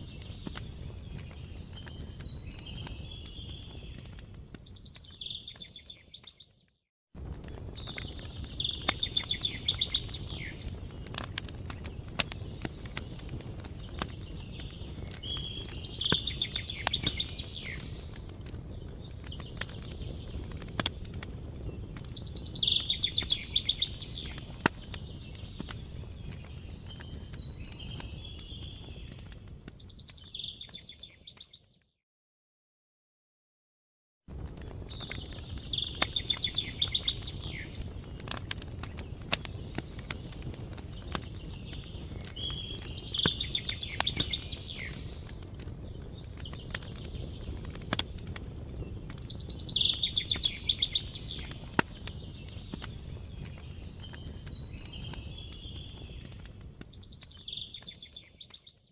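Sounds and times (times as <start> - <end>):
campfire crackling and popping: 0.0 - 31.7, 34.3 - 58.9
songbird trilling: 22.2 - 24.3.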